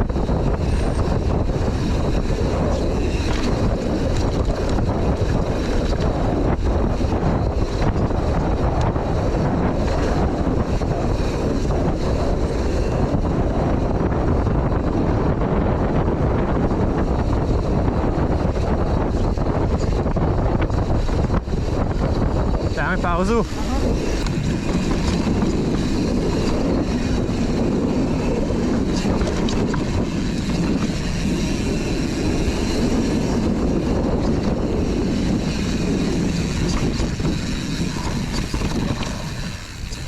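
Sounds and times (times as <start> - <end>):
mountain bike rattling: 0.0 - 40.0
wind on microphone: 0.0 - 40.0
tyre noise on dirt: 23.4 - 40.0.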